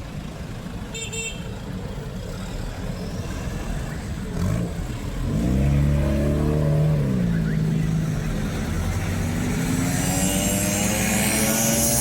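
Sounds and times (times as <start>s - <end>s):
road traffic rumbling: 0.0s - 12.0s
vehicle engine revving: 2.5s - 12.0s.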